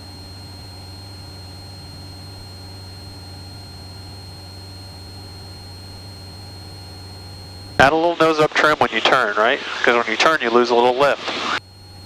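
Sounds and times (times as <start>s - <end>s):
airplane engine droning: 0.0s - 12.0s
faint high-pitched whine: 2.3s - 12.0s.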